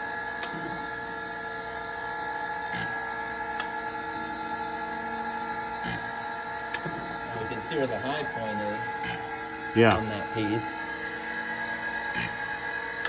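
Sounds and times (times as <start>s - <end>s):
grinder machine hum and whine: 0.0s - 13.0s
short machine bursts: 5.8s - 6.1s, 9.0s - 9.2s, 12.1s - 12.4s.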